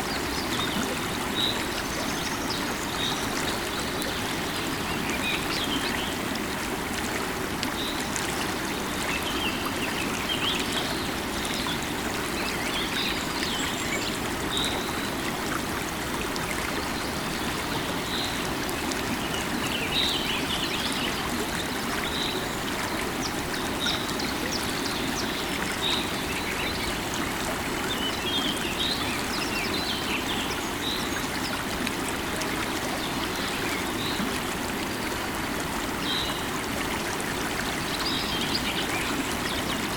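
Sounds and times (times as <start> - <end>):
river water running: 0.0 - 39.9.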